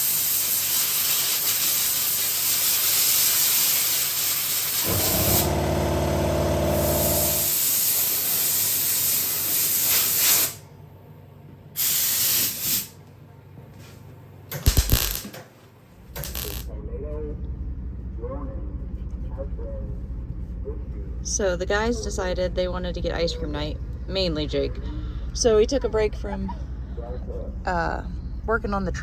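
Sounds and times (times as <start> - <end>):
air blow gun hissing: 0.0 - 10.6, 11.8 - 13.0
low hum: 4.9 - 7.7, 16.2 - 29.0.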